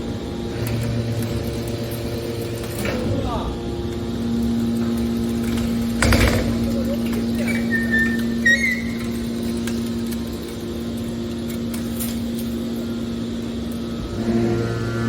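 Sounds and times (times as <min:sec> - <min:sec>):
hydraulic baler humming: 0:00.0 - 0:15.0
short high squeaks: 0:07.4 - 0:09.6.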